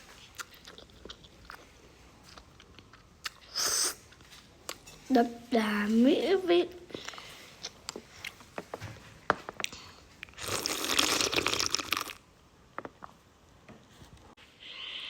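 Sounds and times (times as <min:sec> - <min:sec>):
wet chewing clicks: 0:00.3 - 0:01.7
noodle slurping: 0:10.3 - 0:12.2.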